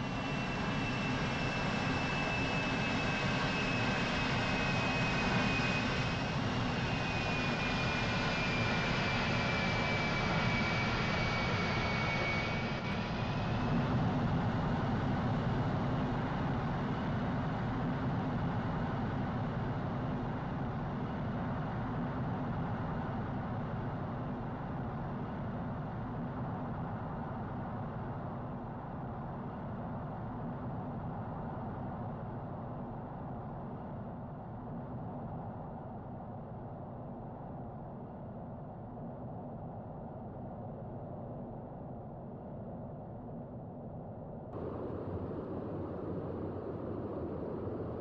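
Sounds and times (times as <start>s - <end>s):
jet aircraft flying by: 0.0s - 17.2s, 44.6s - 48.0s.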